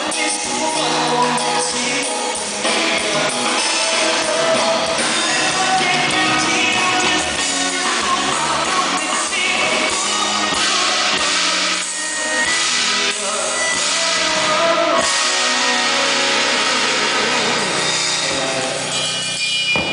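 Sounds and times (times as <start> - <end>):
drum kit: 0.0 - 19.9
guitar: 0.0 - 19.9
live band playing: 0.0 - 19.9.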